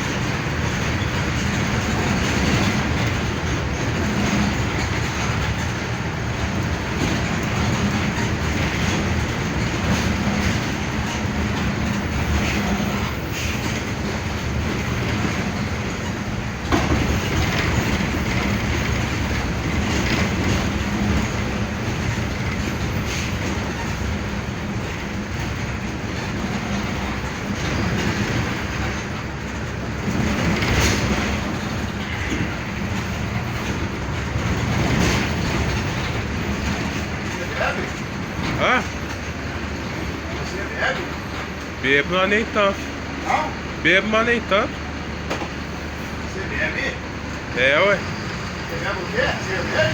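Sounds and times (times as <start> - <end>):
diesel bus engine running: 0.0 - 49.9
road and body noise: 0.0 - 49.9.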